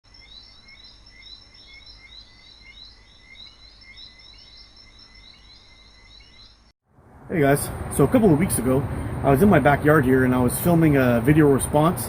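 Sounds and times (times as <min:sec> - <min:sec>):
small birds chirping: 0:00.1 - 0:06.8
low outdoor rumble: 0:06.9 - 0:12.0.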